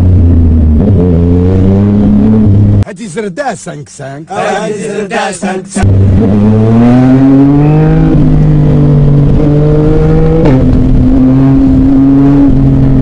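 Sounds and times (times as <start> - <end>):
motorcycle engine accelerating: 0.0 - 2.8, 5.8 - 13.0.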